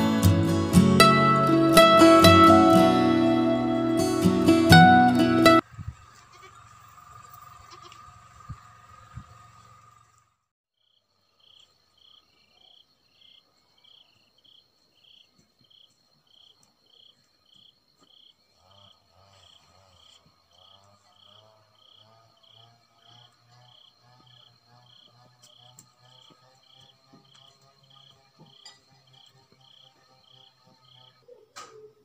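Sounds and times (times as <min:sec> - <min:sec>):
insect chirping: 0:10.8 - 0:32.0
insects trilling: 0:10.8 - 0:32.0
low rhythmic calls: 0:19.5 - 0:32.0.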